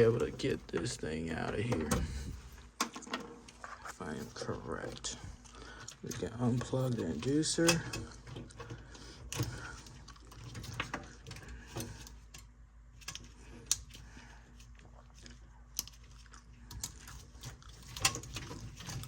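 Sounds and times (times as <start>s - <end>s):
light clicks and metallic rattles: 4.8s - 19.0s.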